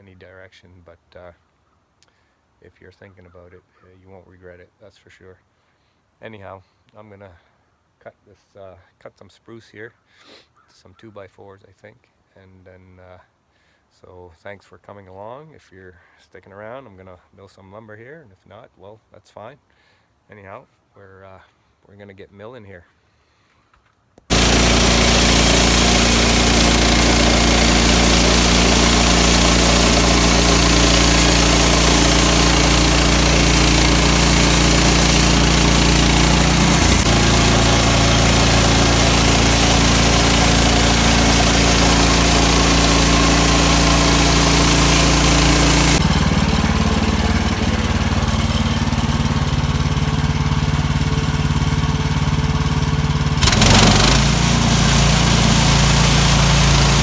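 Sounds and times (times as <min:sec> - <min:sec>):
sawmill engine running: 0:24.3 - 0:57.0.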